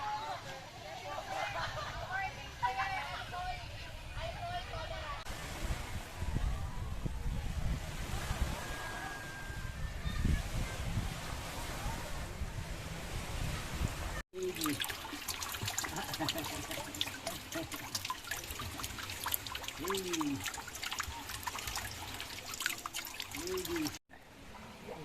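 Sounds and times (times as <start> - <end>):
seawater splashing and trickling: 13.0 - 25.0.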